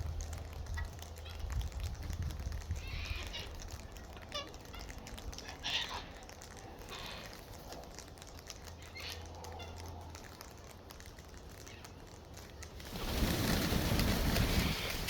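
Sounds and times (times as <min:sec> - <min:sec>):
wind buffeting microphone: 0:00.0 - 0:04.2
faint ticks: 0:00.0 - 0:13.3.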